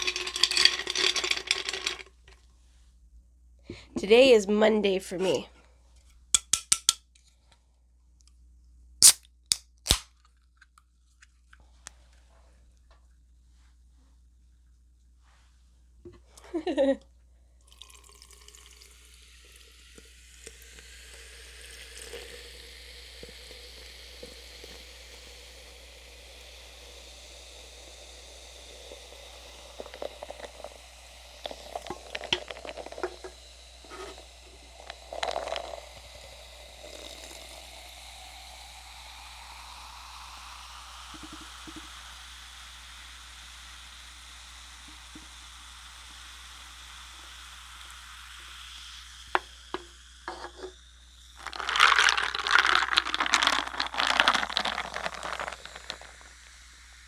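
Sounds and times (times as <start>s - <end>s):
drink pouring into cup: 0.0s - 2.4s, 17.6s - 42.7s, 44.8s - 57.0s
clicks and knocks of cup and bottle: 6.4s - 7.0s, 49.4s - 50.8s.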